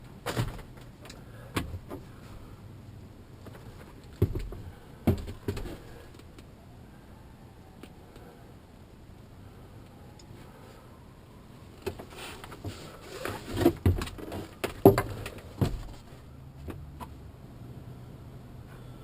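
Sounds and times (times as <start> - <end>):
low steady hum: 0.0 - 19.0
knocks and rattles: 3.4 - 5.8, 11.9 - 16.8.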